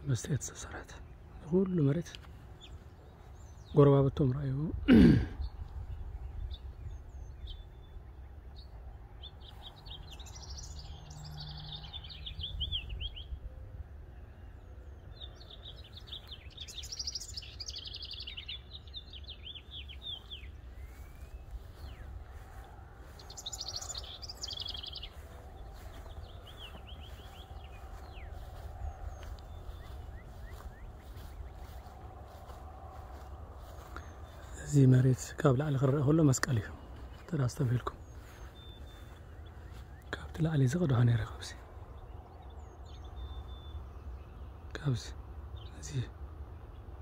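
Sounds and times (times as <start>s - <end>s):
songbirds chirping and trilling: 0.0s - 47.0s.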